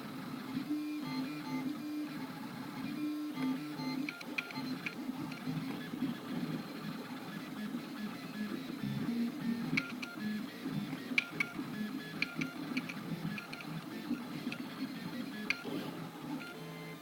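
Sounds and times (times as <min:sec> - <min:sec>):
sharp clicks: 0:10.9 - 0:15.7.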